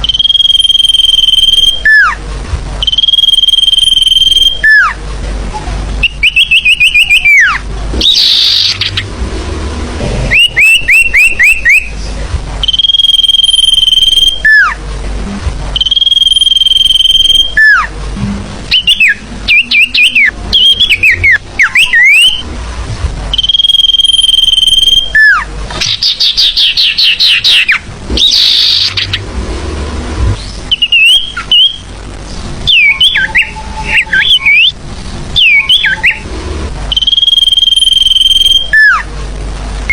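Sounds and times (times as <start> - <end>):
high bird whistles: 0.0 - 2.2, 2.8 - 5.0, 6.0 - 9.1, 10.3 - 12.0, 12.6 - 14.8, 15.8 - 17.9, 18.7 - 22.4, 23.3 - 29.2, 30.4 - 31.9, 32.7 - 34.8, 35.4 - 36.3, 36.9 - 39.0
fast bird chirps: 6.0 - 9.1, 10.3 - 11.9, 23.4 - 29.2, 30.4 - 31.9.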